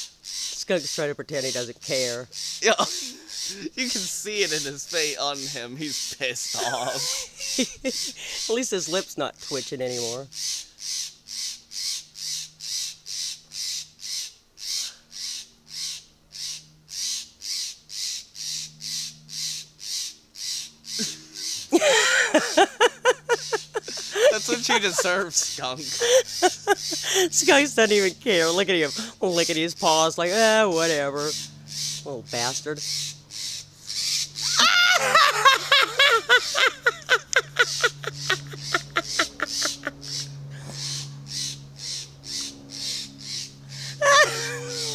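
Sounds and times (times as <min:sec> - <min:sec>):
bird harsh scolding calls: 0:00.0 - 0:08.7, 0:09.8 - 0:34.7, 0:36.3 - 0:44.9
person laughing: 0:02.6 - 0:04.1, 0:06.5 - 0:08.5, 0:21.0 - 0:27.6, 0:34.4 - 0:40.8, 0:44.0 - 0:44.9.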